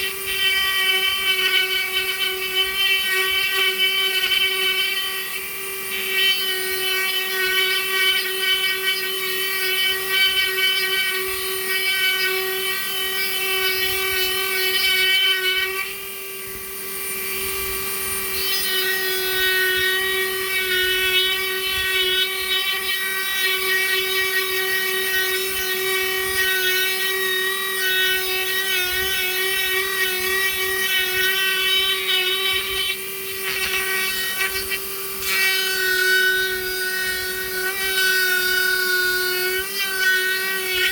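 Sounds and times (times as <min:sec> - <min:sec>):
power tool motor whining: 0:00.0 - 0:40.9.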